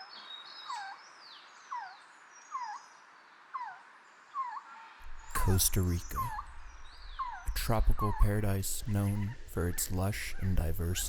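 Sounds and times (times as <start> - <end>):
background hiss: 5.0 - 11.0.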